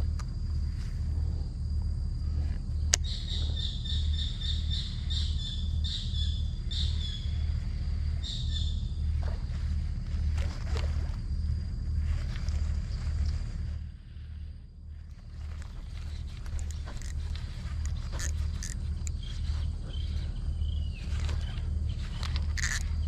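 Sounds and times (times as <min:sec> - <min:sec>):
bird chirping: 0:02.9 - 0:09.2, 0:15.2 - 0:23.0.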